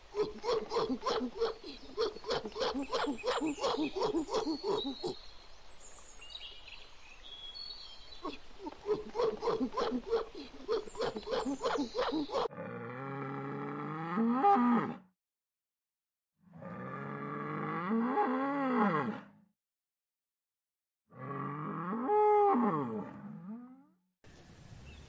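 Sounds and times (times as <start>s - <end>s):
gorilla grunting rhythmically: 0.0s - 5.1s, 8.6s - 12.5s
bird chirps: 9.8s - 12.5s
cow mooing: 12.5s - 15.0s, 16.5s - 19.3s, 21.1s - 23.9s.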